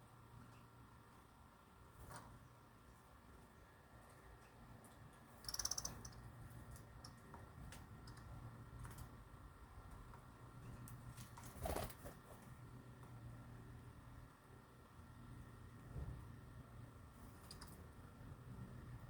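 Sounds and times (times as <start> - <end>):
bird chirping: 5.4 - 6.3.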